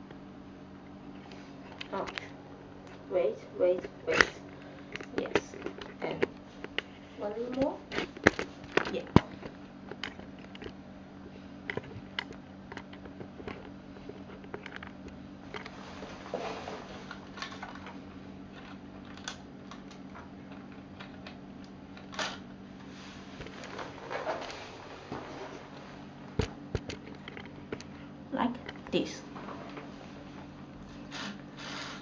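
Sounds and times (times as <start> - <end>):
steady low hum: 0.0 - 32.0
plastic pieces clicking: 18.5 - 21.4.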